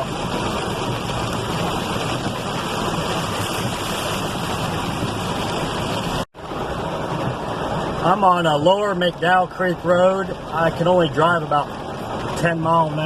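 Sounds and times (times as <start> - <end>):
tyres churning through hail and slush: 0.0 - 13.0.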